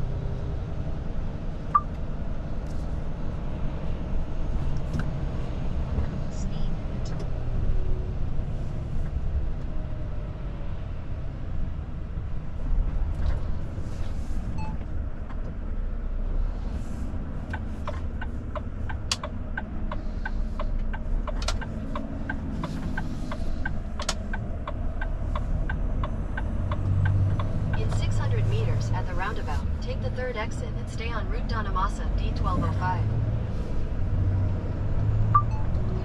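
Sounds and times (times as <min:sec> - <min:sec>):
truck engine and road rumble: 0:00.0 - 0:36.0
turn indicator ticking: 0:17.4 - 0:29.1, 0:35.3 - 0:35.8.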